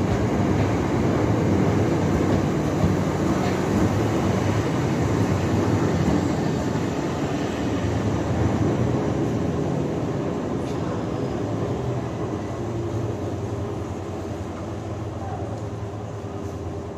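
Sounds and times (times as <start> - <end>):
train wheels rumbling: 0.0 - 16.9.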